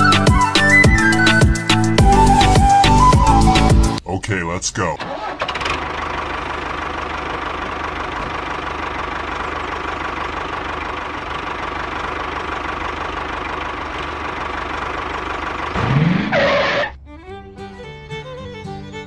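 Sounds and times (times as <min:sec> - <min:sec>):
tractor engine running: 0:05.0 - 0:19.0.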